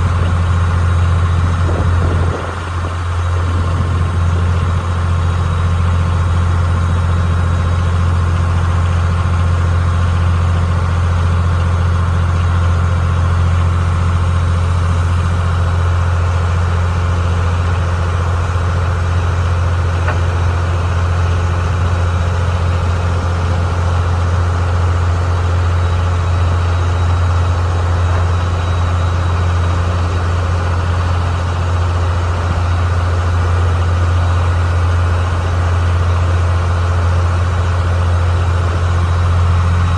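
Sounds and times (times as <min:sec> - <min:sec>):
boat diesel engine droning: 0:00.0 - 0:39.9.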